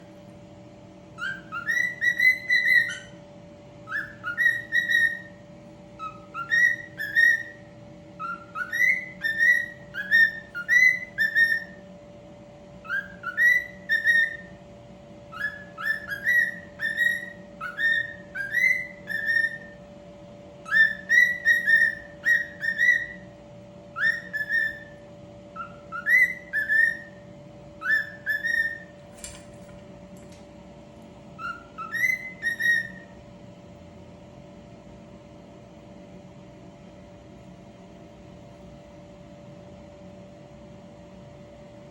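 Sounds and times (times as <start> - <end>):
steady low hum: 0.0 - 41.9
cockatiel whistling a tune: 1.2 - 3.2, 3.8 - 5.4, 6.0 - 11.8, 12.8 - 14.6, 15.3 - 19.8, 20.6 - 23.3, 23.9 - 29.4, 31.4 - 33.2.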